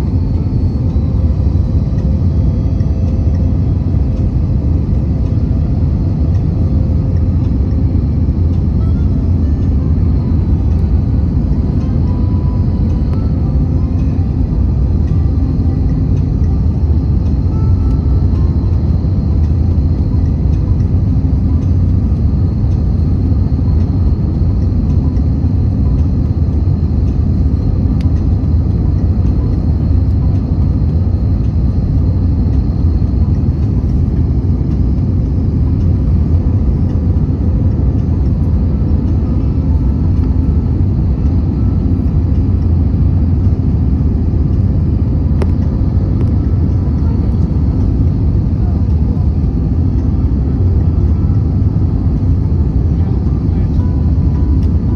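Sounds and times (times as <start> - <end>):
airliner engine and airflow rumble: 0.0 - 54.9
faint high whine: 0.0 - 54.9.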